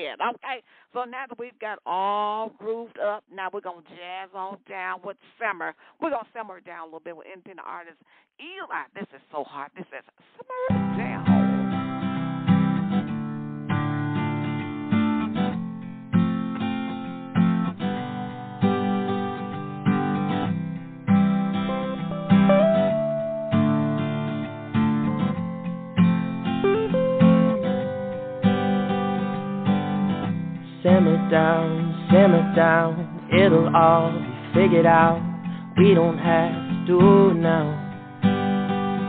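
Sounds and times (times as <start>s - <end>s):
held lead guitar notes: 10.5s - 39.0s
strummed acoustic guitar: 10.5s - 39.0s.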